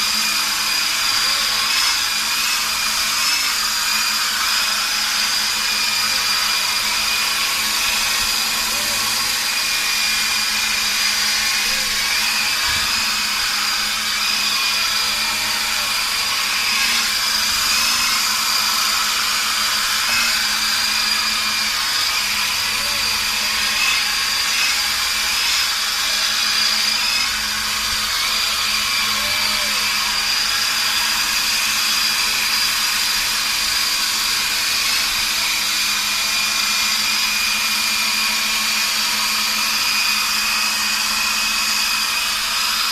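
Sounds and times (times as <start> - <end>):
toy helicopter motor whine: 0.0 - 42.9.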